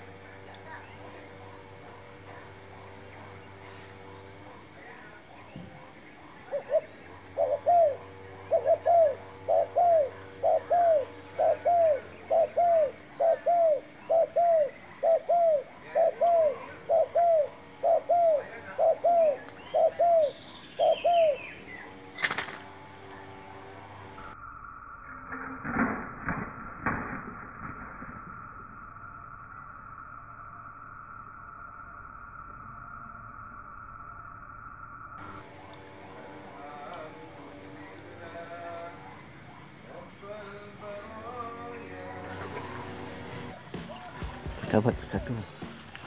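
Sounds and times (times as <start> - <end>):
dove cooing: 6.4 - 22.2.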